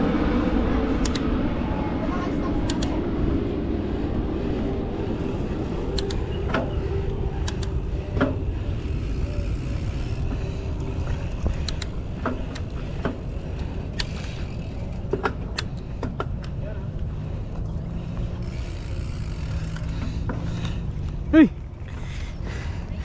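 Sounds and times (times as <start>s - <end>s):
wind rushing over microphone: 0.0s - 17.1s
tyres on dirt trail: 0.0s - 23.0s
bike clicks and rattles: 0.9s - 1.3s, 2.6s - 3.0s, 5.2s - 23.0s.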